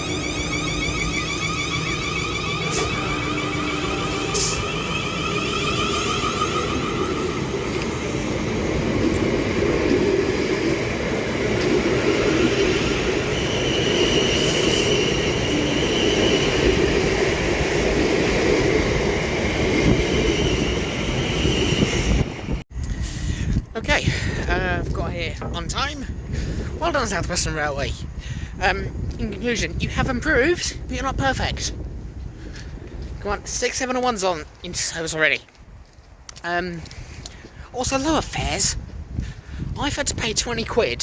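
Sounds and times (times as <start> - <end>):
thin high whine: 0.0 - 8.4
train wheels rumbling on track: 0.0 - 22.7.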